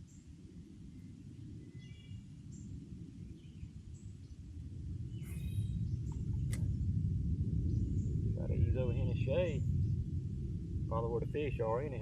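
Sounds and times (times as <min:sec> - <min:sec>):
high bird chirps: 0:05.2 - 0:06.1.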